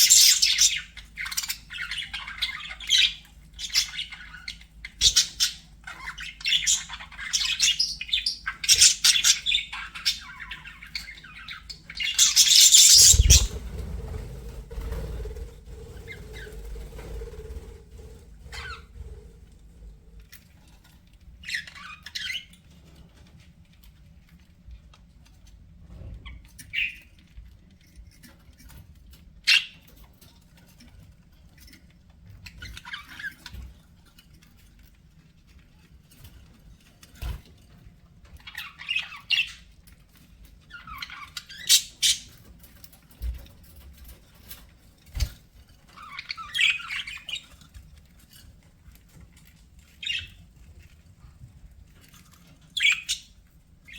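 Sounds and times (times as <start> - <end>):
budgerigars chirping: 0.0 - 13.9, 40.7 - 42.4, 45.9 - 47.6, 50.0 - 50.4, 52.7 - 53.9.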